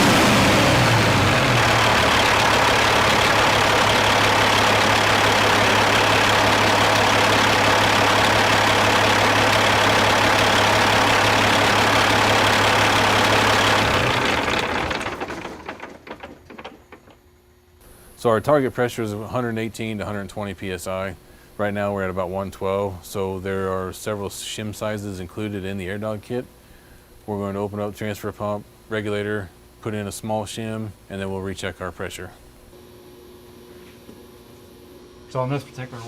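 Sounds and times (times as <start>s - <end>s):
diesel engine idling: 0.0s - 15.8s.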